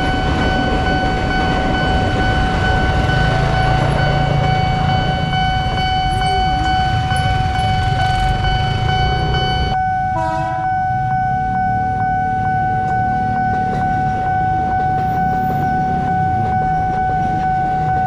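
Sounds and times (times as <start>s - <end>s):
crossing warning alarm: 0.0s - 18.0s
electric train rumbling: 0.0s - 18.0s
train horn blast: 10.1s - 10.8s.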